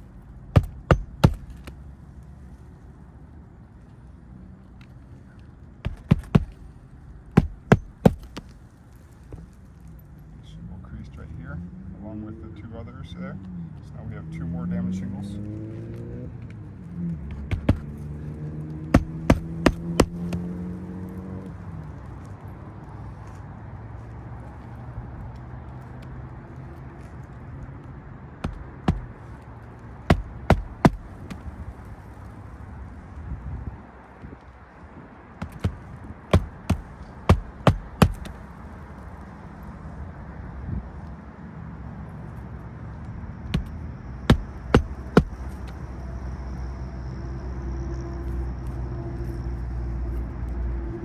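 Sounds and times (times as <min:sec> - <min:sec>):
hammer striking nails: 0:00.6 - 0:01.7, 0:05.9 - 0:06.6, 0:07.4 - 0:08.5, 0:17.5 - 0:18.0, 0:19.0 - 0:20.6, 0:28.4 - 0:29.1, 0:30.1 - 0:31.5, 0:35.4 - 0:38.4, 0:44.3 - 0:45.8
low steady engine hum: 0:28.1 - 0:33.7.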